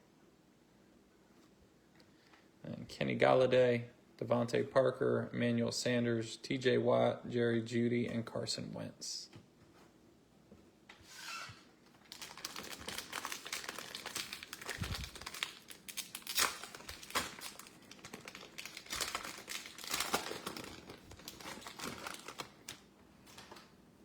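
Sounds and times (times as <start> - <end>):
plastic wrapper crinkling and tearing: 12.0 - 23.7.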